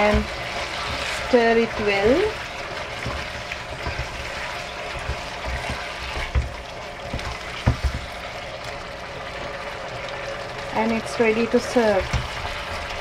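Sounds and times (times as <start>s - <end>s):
chicken sizzling in a pan: 0.0s - 13.0s
utensil knocking against pan: 3.0s - 8.1s.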